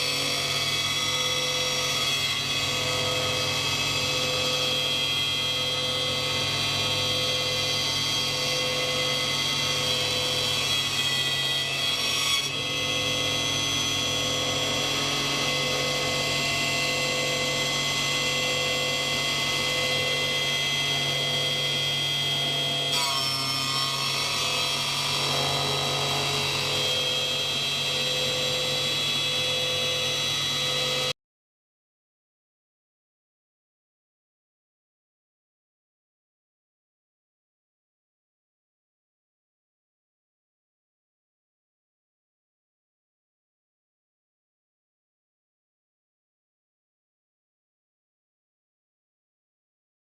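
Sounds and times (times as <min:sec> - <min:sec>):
woodworking machine motor whine: 0:00.0 - 0:31.2.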